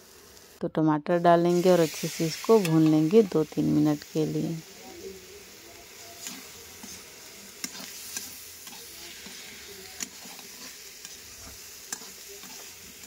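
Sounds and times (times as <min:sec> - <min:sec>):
food sizzling in oil: 0:00.0 - 0:13.0
metal spatula scraping a pan: 0:05.9 - 0:13.0.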